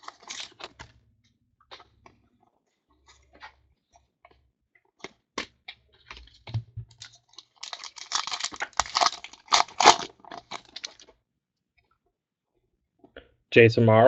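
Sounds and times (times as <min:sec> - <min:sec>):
crinkling wrapper: 0:00.0 - 0:01.0, 0:05.0 - 0:11.2.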